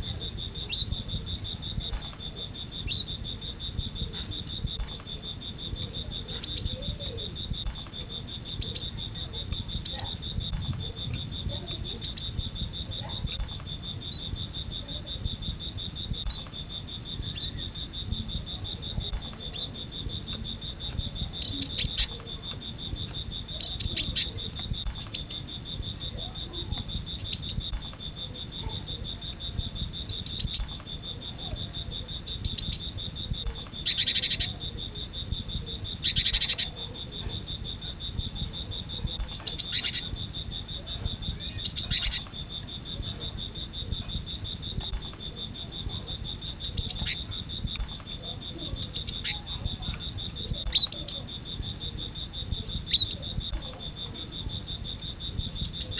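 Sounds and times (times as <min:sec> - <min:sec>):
bird whistling song: 0:00.0 - 0:13.4, 0:14.0 - 0:14.7, 0:16.1 - 0:22.2, 0:23.0 - 0:28.3, 0:29.1 - 0:30.8, 0:31.5 - 0:33.0, 0:33.8 - 0:34.6, 0:36.0 - 0:36.7, 0:39.1 - 0:40.2, 0:40.8 - 0:42.4, 0:46.3 - 0:49.4, 0:50.3 - 0:51.2, 0:52.6 - 0:53.5, 0:55.5 - 0:55.9
high insect tone: 0:00.0 - 0:55.9.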